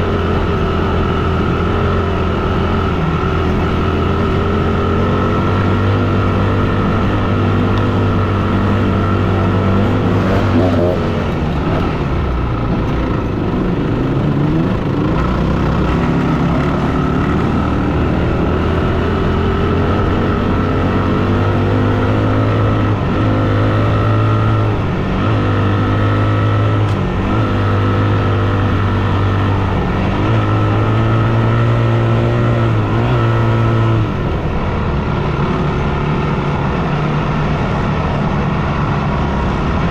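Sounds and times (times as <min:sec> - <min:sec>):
dirt bike engine revving: 0:00.0 - 0:34.6.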